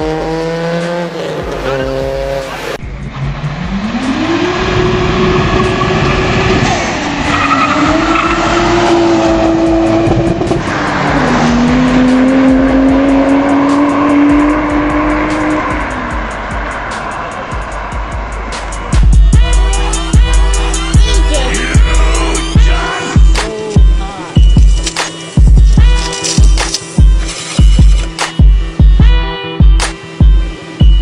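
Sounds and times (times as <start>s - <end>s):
car engine accelerating: 0.0s - 19.3s.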